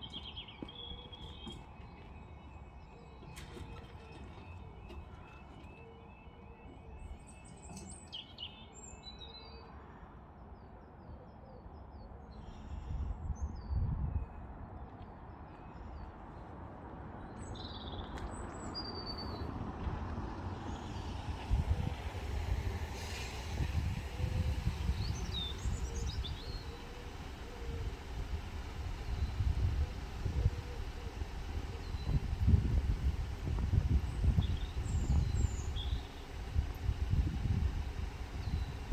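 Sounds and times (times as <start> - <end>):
low outdoor rumble: 18.3 - 38.9
broad hiss: 21.6 - 38.9
songbirds chirping and singing: 24.2 - 38.9.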